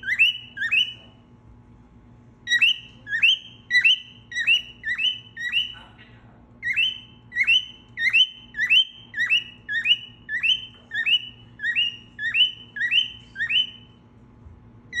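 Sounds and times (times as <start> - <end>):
cockatiel whistle call: 0.0 - 1.1, 2.5 - 5.8, 6.6 - 13.9.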